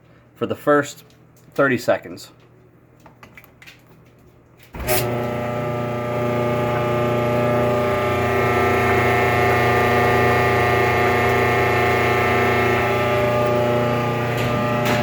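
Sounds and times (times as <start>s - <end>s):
dryer motor and drum running: 4.7s - 15.0s.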